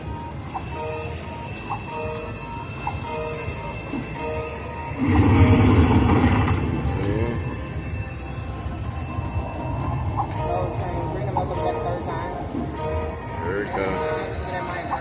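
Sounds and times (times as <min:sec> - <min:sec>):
slot machine chime: 0:00.0 - 0:15.0
slot machine burst: 0:03.6 - 0:07.7.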